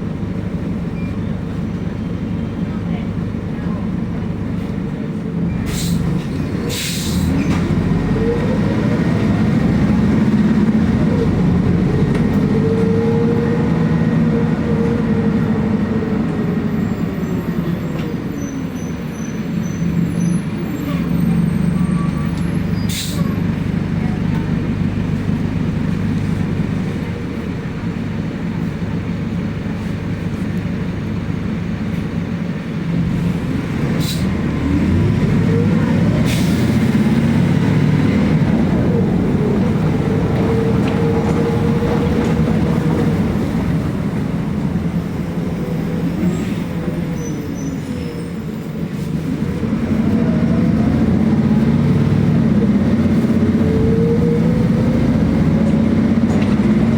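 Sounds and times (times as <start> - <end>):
bus engine hum: 0.0 - 56.9.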